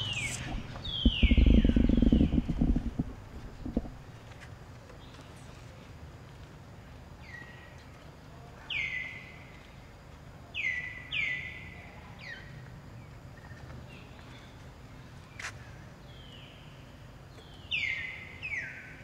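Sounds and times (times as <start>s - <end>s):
bird whistling calls: 0.0s - 4.0s
low background hum: 0.0s - 19.0s.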